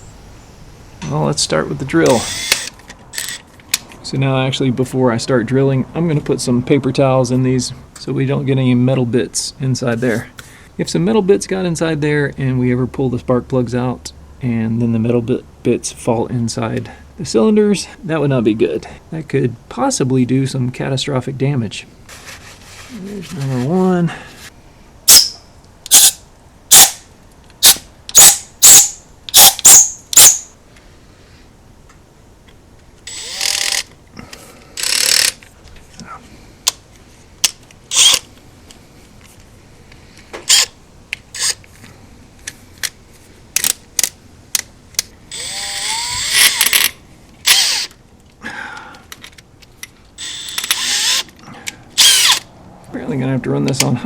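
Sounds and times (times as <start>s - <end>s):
sharp loud clicks: 2.0s - 3.9s, 25.1s - 30.5s, 52.0s - 52.5s
drill running in bursts: 2.1s - 2.7s, 33.1s - 33.8s, 45.3s - 46.9s, 50.2s - 51.2s, 52.0s - 52.4s.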